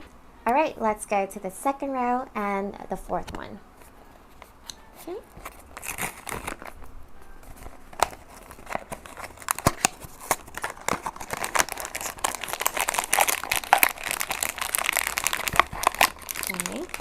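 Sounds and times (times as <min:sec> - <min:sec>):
packaging crinkled and torn: 0:05.3 - 0:17.0.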